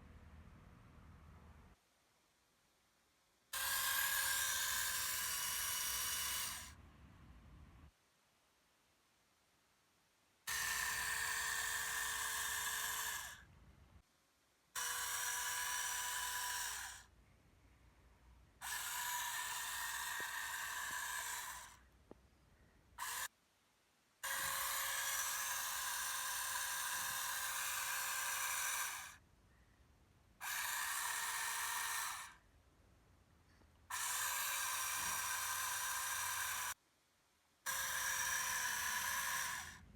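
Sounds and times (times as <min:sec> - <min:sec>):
small electric motor whining: 0:03.6 - 0:06.8, 0:10.5 - 0:13.6, 0:14.8 - 0:17.2, 0:18.6 - 0:22.0, 0:23.0 - 0:23.3, 0:24.2 - 0:29.2, 0:30.4 - 0:32.5, 0:33.5 - 0:36.8, 0:37.7 - 0:39.9.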